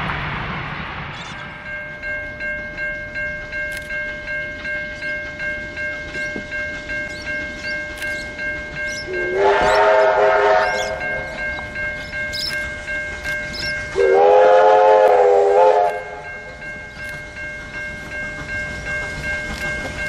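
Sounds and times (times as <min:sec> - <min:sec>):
train running rhythmically: 0:00.0 - 0:20.0
train whistle blowing: 0:08.9 - 0:11.6, 0:13.5 - 0:16.6.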